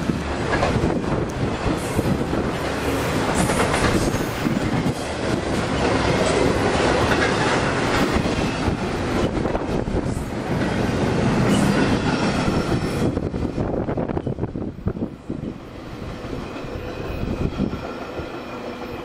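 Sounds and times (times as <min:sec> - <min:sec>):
clacking over rail joints: 0:00.0 - 0:13.1
freight train wheels rumbling: 0:00.0 - 0:19.0.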